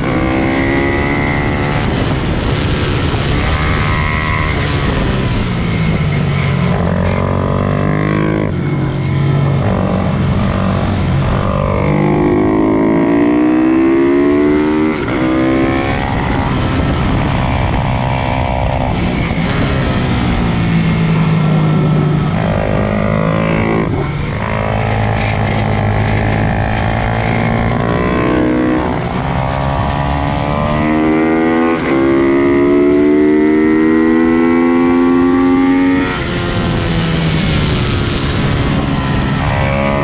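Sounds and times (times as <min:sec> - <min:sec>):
pit bike engines revving: 0:00.0 - 0:40.0.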